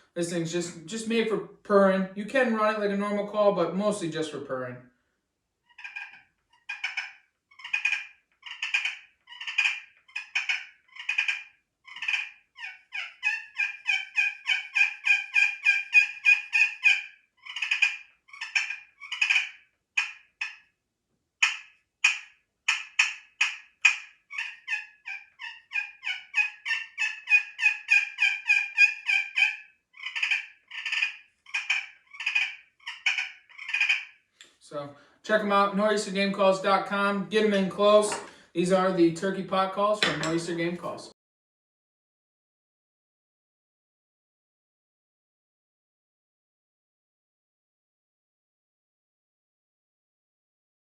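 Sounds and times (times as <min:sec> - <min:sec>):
turkey call purring: 0:05.7 - 0:20.6, 0:21.4 - 0:34.1.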